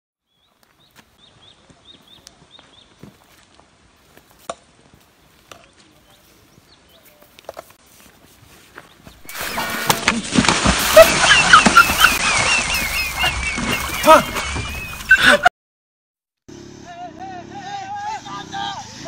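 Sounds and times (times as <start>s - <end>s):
footsteps in grass: 0.5s - 9.8s.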